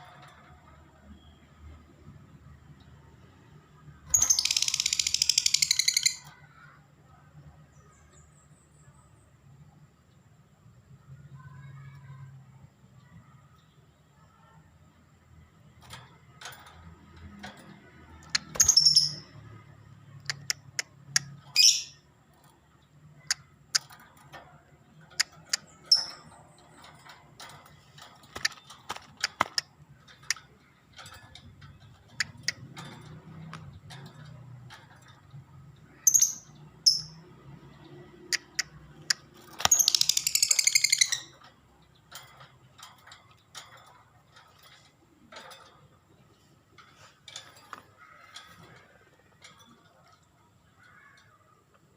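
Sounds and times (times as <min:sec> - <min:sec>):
bird chirping and chattering: 0:04.0 - 0:06.7, 0:17.6 - 0:51.7
sharp clicks: 0:18.2 - 0:19.2, 0:20.2 - 0:21.4, 0:27.6 - 0:30.5, 0:38.3 - 0:41.1.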